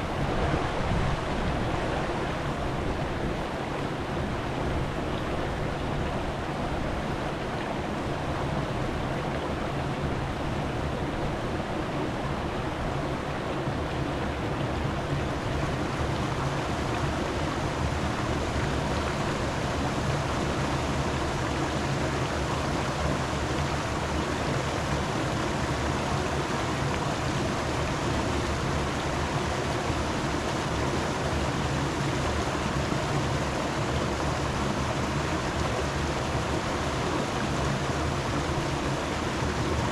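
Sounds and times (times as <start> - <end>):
steady rushing noise: 0.0 - 3.6.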